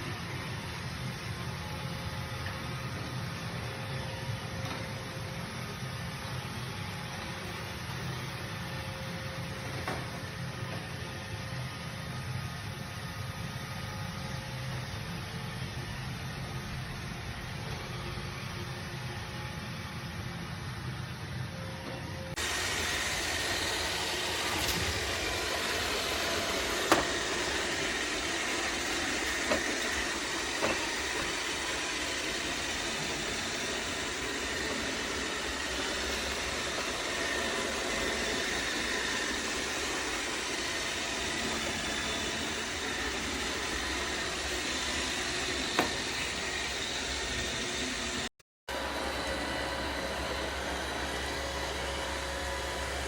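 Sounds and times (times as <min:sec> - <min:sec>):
robot vacuum running: 0:21.5 - 0:53.0.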